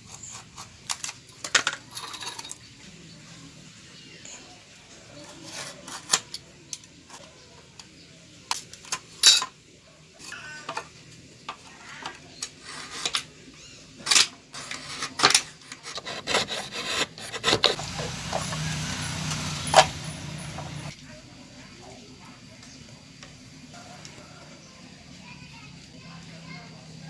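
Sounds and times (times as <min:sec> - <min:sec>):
hand tools rasping wood: 0:15.6 - 0:20.9.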